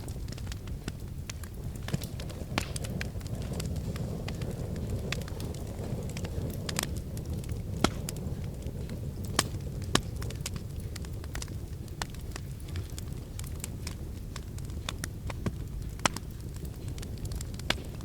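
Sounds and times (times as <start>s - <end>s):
fire snaps and pops: 0.0s - 18.0s
low rumble: 0.0s - 18.0s
wood fire crackling: 0.0s - 18.0s.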